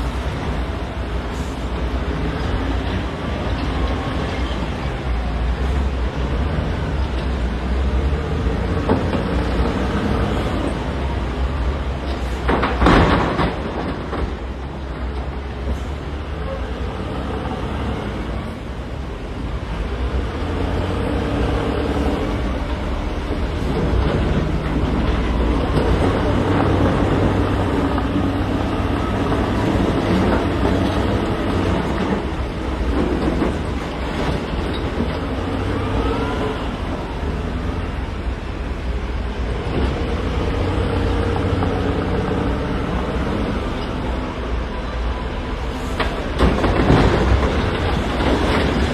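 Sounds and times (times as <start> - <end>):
diesel machinery engine under load: 0.0 - 48.9
knocks and clatter: 12.0 - 15.8, 23.6 - 35.4, 46.0 - 48.9.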